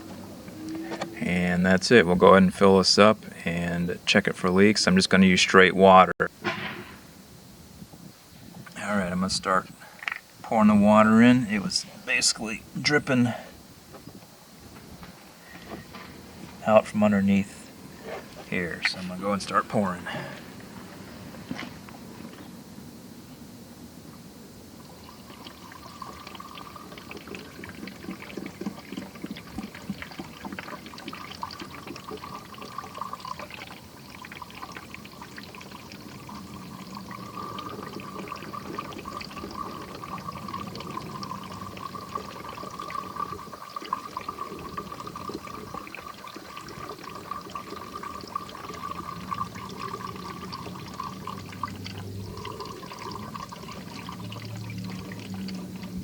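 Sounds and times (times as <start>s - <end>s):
water pouring into plastic reservoir: 24.8s - 56.0s.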